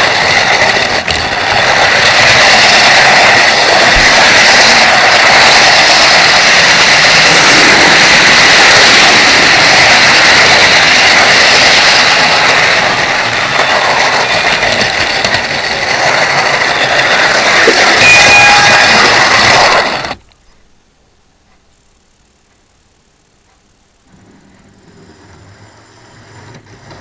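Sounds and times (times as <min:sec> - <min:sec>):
small wheels clattering on rails: 0:00.0 - 0:20.2
thin high whine: 0:00.0 - 0:27.0.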